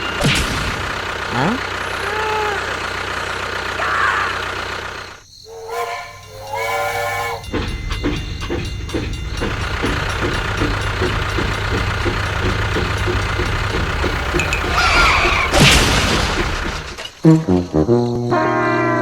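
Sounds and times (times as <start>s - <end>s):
crash: 0.0s - 1.4s, 9.4s - 17.8s
chugging engine-like hum: 0.0s - 18.9s.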